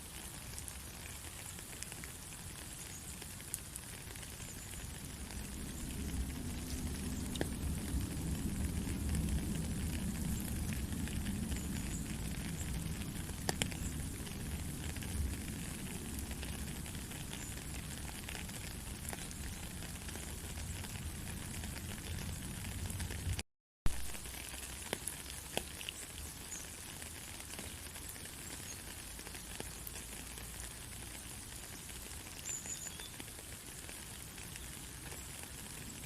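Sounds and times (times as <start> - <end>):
raindrop ticks: 0.0 - 36.0
steady rain hiss: 0.0 - 36.0
low rumble: 5.1 - 17.0.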